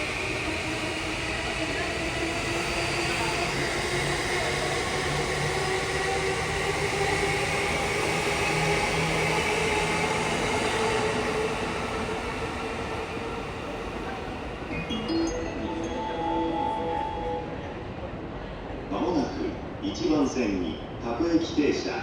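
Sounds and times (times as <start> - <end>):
electric train rumbling: 0.0 - 22.0
rising chime tones: 14.7 - 17.8.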